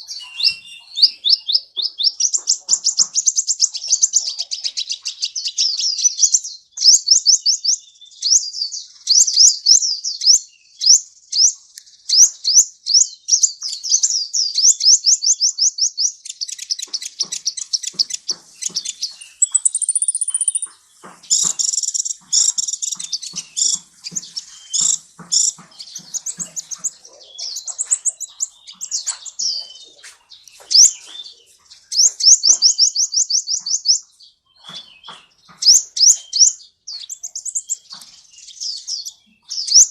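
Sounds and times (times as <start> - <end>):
bird chirping trills: 0.0 - 39.9
bird whistle: 0.1 - 1.4, 19.3 - 20.7.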